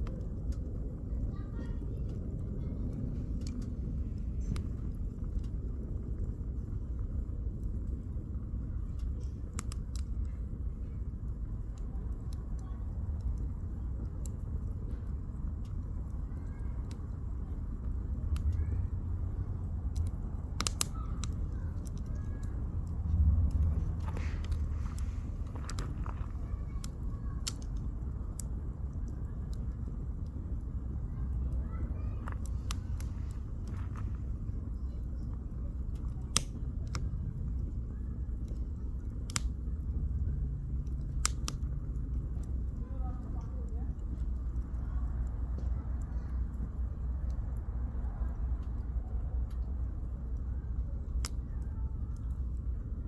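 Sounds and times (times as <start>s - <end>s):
campfire pops and snaps: 0.0s - 1.3s, 1.9s - 53.0s
low fire rumble: 0.0s - 53.0s
low rumble: 12.6s - 38.0s
sharp pops of fire: 18.0s - 39.9s, 40.7s - 42.6s.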